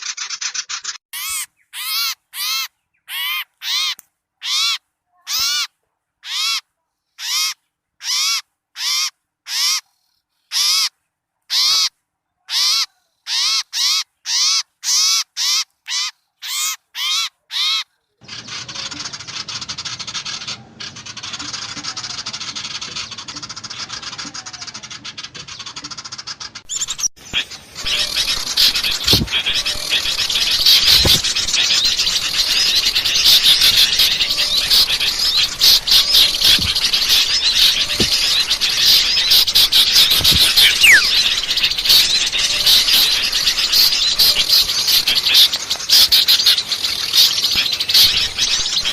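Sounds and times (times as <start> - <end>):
chatter of many small birds: 17.0 - 48.9
bird harsh nasal call: 26.7 - 48.9.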